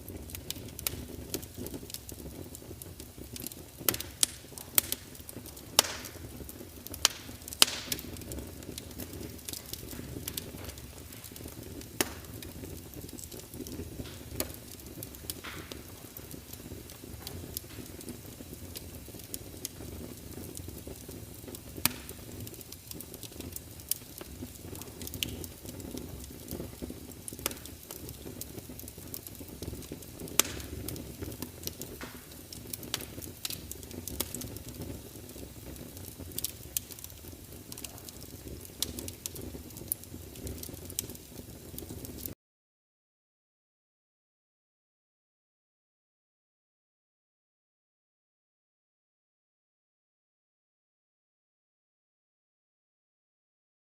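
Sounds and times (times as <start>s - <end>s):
wood fire crackling and popping: 0.0s - 42.4s.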